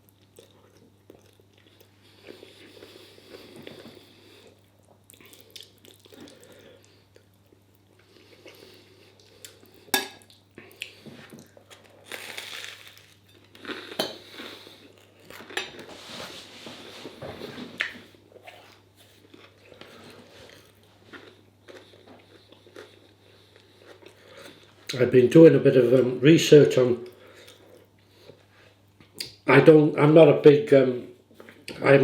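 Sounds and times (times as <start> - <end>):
chewing food: 0.0 - 15.8, 18.6 - 25.0.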